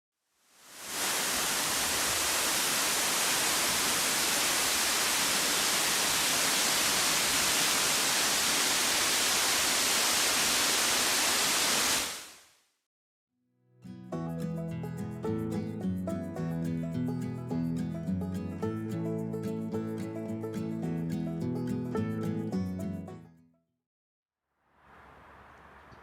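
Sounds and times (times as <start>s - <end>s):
waterfall roaring: 0.6s - 12.3s.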